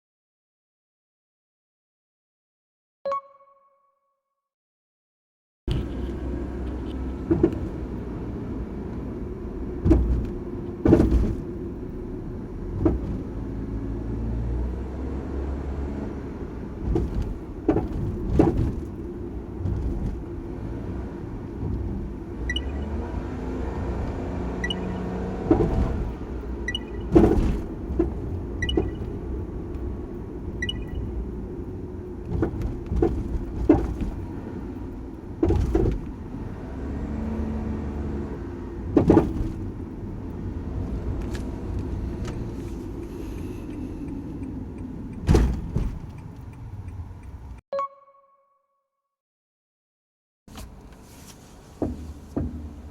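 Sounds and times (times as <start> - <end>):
suspension clunks: 5.7 - 13.7, 16.4 - 20.6, 21.2 - 37.3, 38.8 - 47.6, 50.5 - 52.9
car road rumble: 5.7 - 47.6, 50.5 - 52.9.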